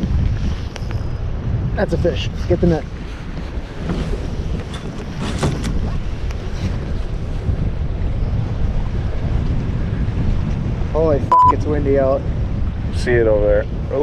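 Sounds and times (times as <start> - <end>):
waves washing against boat: 0.0 - 14.0
wind buffeting microphone: 0.0 - 14.0.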